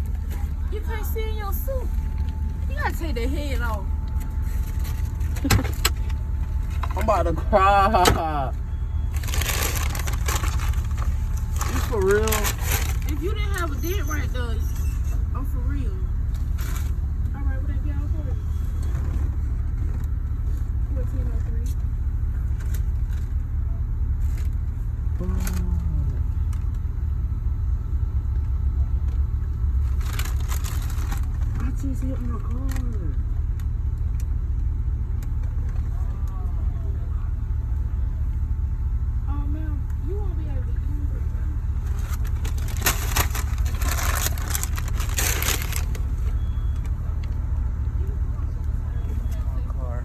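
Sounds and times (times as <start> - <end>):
crinkling rustling noise: 0.0 - 7.2, 9.1 - 14.1, 29.1 - 35.9, 41.6 - 47.6
car engine rumble inside cabin: 0.0 - 50.0.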